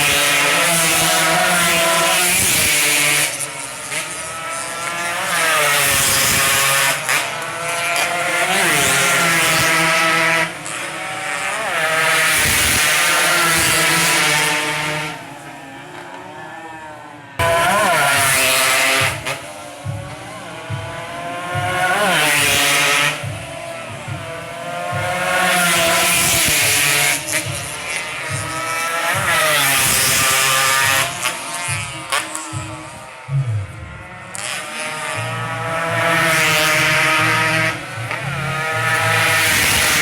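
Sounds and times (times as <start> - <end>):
motorcycle engines revving: 0.0 - 40.0.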